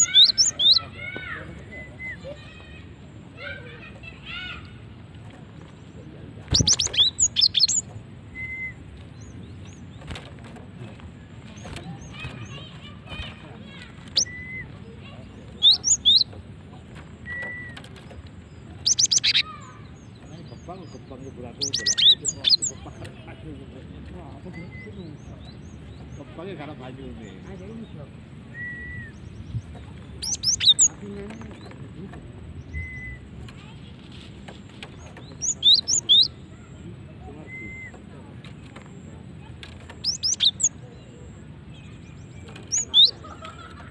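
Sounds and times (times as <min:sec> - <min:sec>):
tit whistled calls: 0:00.0 - 0:00.9, 0:06.5 - 0:08.8, 0:15.6 - 0:16.3, 0:18.8 - 0:19.6, 0:30.2 - 0:30.9, 0:35.4 - 0:36.4, 0:40.0 - 0:40.8, 0:42.7 - 0:43.7
bird sharp high chirps: 0:00.0 - 0:02.6, 0:06.5 - 0:10.2, 0:11.5 - 0:16.4, 0:17.2 - 0:22.9, 0:28.5 - 0:31.0, 0:34.9 - 0:38.0, 0:39.7 - 0:43.9.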